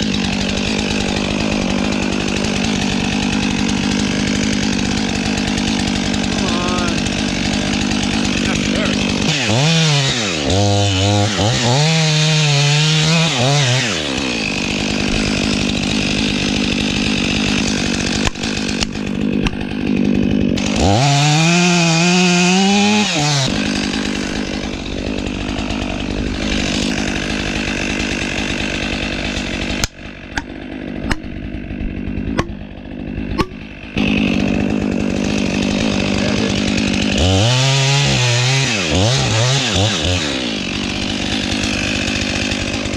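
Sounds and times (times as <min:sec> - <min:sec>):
chainsaw cutting wood: 0:00.0 - 0:42.9
sharp knocks or cracks: 0:18.2 - 0:19.6, 0:29.8 - 0:32.6, 0:33.3 - 0:33.6.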